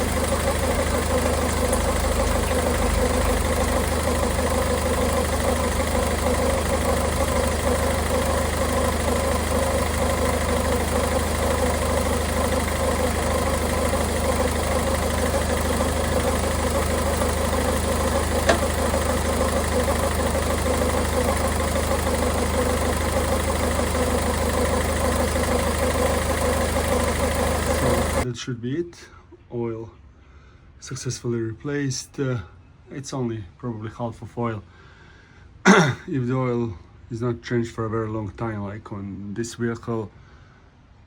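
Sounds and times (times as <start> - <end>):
diesel engine idling: 0.0 - 28.2
click: 18.4 - 18.8.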